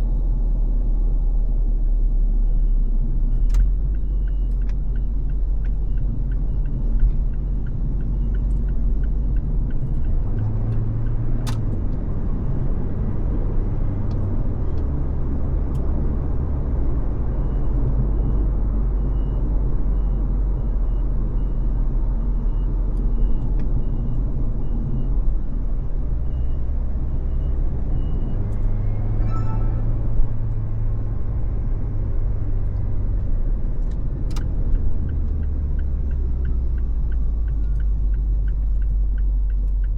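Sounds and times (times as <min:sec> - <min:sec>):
car cruising road rumble: 0:00.0 - 0:39.9
sharp click: 0:11.4 - 0:11.8.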